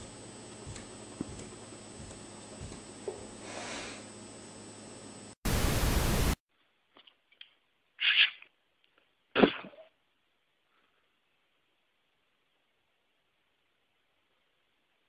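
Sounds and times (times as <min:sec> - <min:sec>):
loud static hiss: 0:03.3 - 0:06.4.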